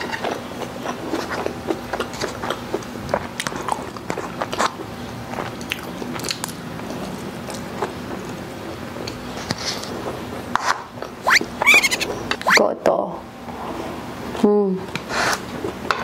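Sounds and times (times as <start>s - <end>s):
chewing with wet mouth clicks: 0.0s - 9.2s.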